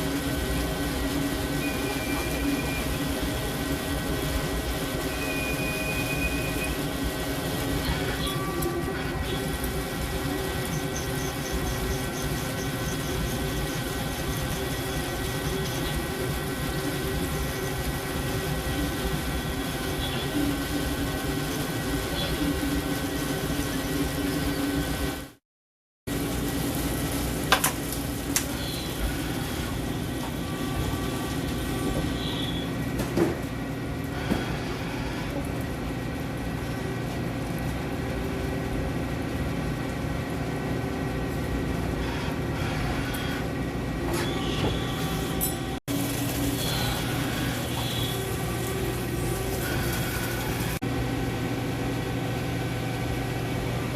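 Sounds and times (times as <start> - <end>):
cnc machine humming: 0.0 - 25.4, 41.2 - 53.9.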